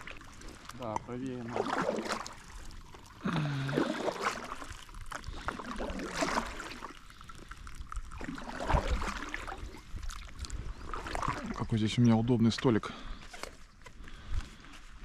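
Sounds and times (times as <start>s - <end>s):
paddles splashing in water: 0.0s - 12.4s
water trickling off paddles: 0.0s - 14.2s.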